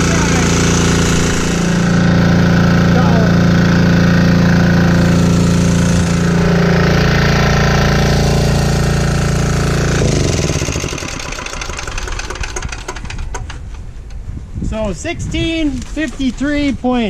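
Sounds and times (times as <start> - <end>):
diesel generator engine knocking: 0.0 - 13.6.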